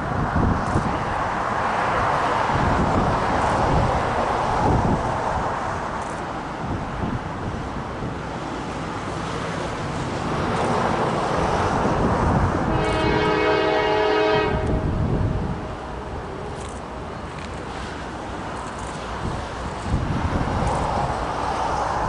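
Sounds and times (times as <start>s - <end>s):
diesel locomotive engine rumble: 0.0s - 22.0s
locomotive horn chord: 12.7s - 15.1s.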